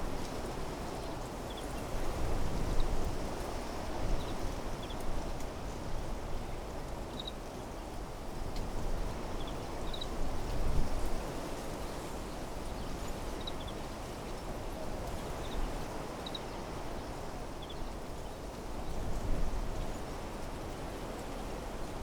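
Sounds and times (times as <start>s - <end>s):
wind through trees: 0.0s - 22.0s.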